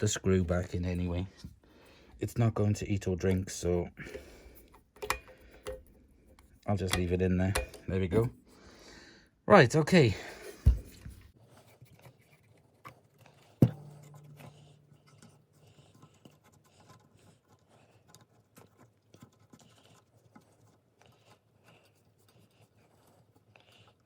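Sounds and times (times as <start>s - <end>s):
brief low ring: 13.6s - 15.2s.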